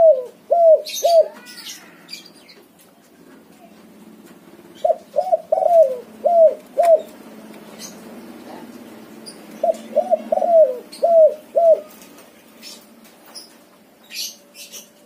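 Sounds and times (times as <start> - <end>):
dove cooing: 0.0 - 1.9, 4.7 - 7.2, 9.6 - 12.1
small birds chirping: 0.2 - 3.8, 4.4 - 15.0.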